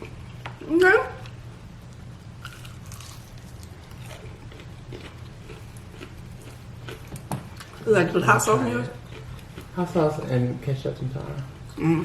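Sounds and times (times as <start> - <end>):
steady low hum: 0.0 - 12.0
crunchy chewing: 1.2 - 7.8.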